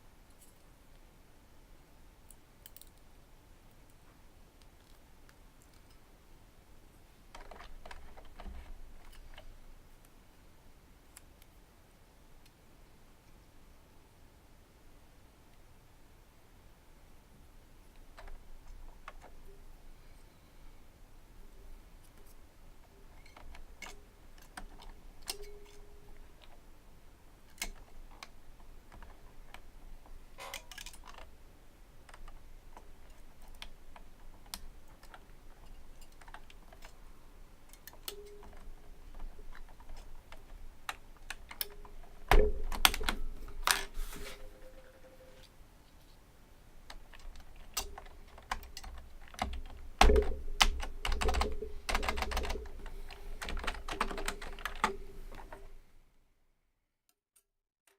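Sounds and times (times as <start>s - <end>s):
keyboard typing: 46.9s - 55.7s.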